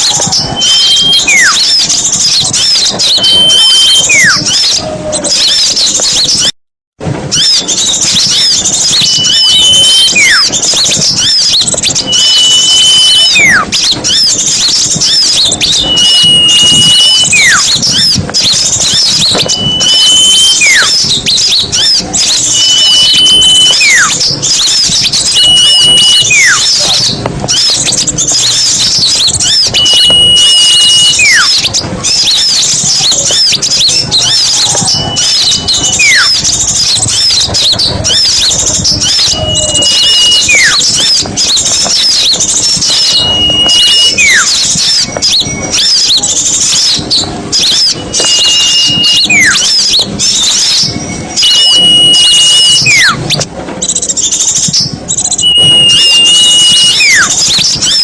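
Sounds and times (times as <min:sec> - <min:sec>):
downward sliding whistle: 0:00.0 - 0:01.8, 0:02.5 - 0:06.5, 0:07.3 - 0:10.6, 0:11.2 - 0:14.2, 0:15.0 - 0:18.0, 0:18.8 - 0:26.9, 0:28.5 - 0:32.4, 0:33.0 - 0:37.5, 0:38.1 - 0:53.5, 0:54.8 - 0:58.0
songbirds chattering chorus: 0:00.0 - 0:06.5, 0:07.2 - 0:58.0
steady high whistle: 0:07.4 - 0:13.8, 0:14.8 - 0:27.0, 0:28.2 - 0:53.2, 0:55.2 - 0:58.0.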